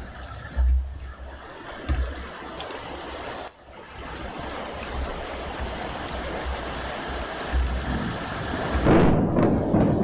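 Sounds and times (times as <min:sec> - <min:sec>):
steady rain hiss: 0:00.0 - 0:10.0
low thunder rumbles: 0:04.0 - 0:10.0.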